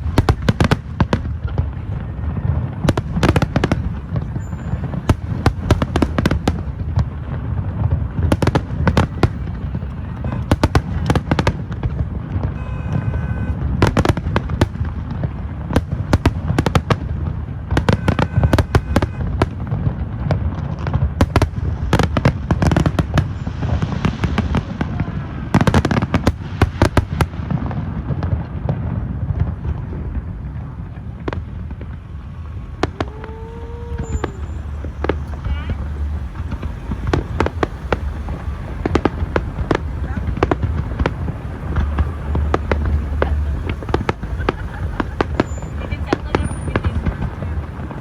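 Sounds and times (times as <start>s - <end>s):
fireworks bangs and pops: 0.0s - 48.0s
fireworks crackling: 0.0s - 48.0s
low rumble: 29.6s - 48.0s.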